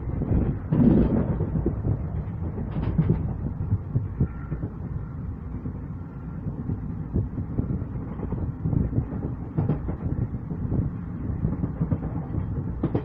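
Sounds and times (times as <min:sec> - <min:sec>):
train rumble from inside coach: 0:00.0 - 0:13.0
wheels knocking over track: 0:00.2 - 0:04.7, 0:08.3 - 0:13.0.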